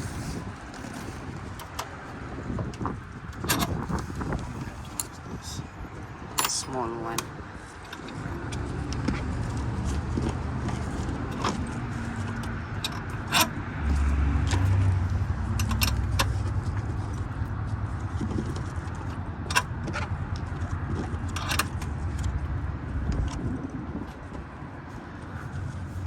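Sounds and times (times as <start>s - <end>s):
hand tools clinking on metal: 6.3s - 7.2s.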